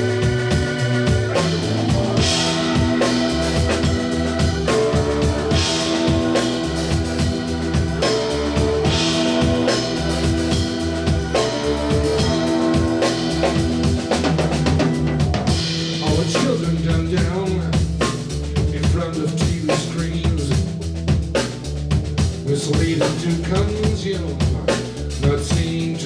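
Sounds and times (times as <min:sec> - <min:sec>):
guitar: 0:00.0 - 0:17.8
bass: 0:00.0 - 0:26.0
drum kit beat: 0:00.0 - 0:26.0.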